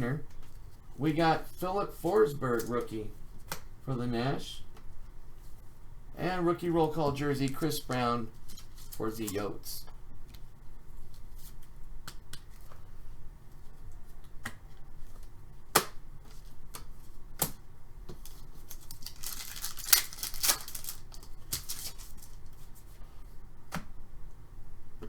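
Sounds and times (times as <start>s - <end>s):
wrapper rustling: 8.3s - 9.5s, 18.2s - 22.9s
cards clicking and snapping: 16.7s - 22.4s.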